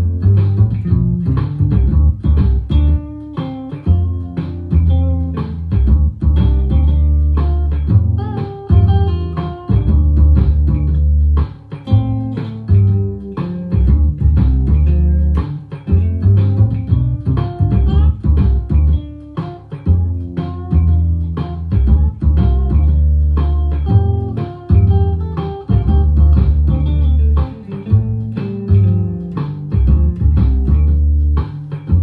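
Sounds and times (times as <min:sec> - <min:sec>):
plucked bass: 0:00.0 - 0:32.0
plucked guitar line: 0:00.0 - 0:32.0.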